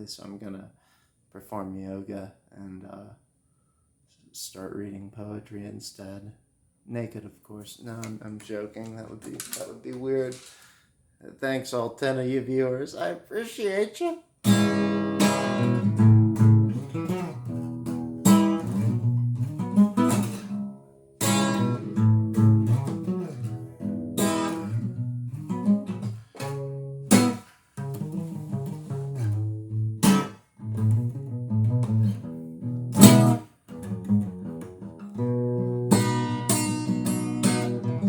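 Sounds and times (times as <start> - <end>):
strummed acoustic guitar: 14.4 - 38.0.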